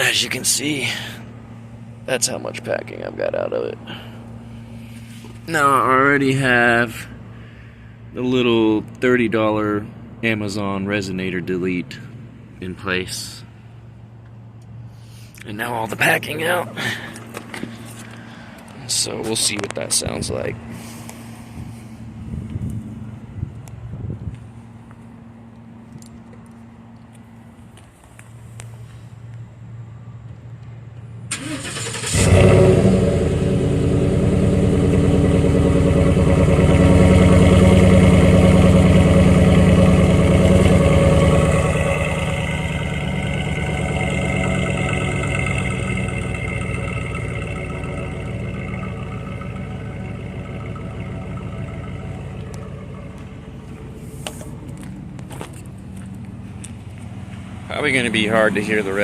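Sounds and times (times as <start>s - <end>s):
engine cranking: 31.3s - 32.8s, 35.9s - 53.3s
engine idling loudly: 32.1s - 54.1s.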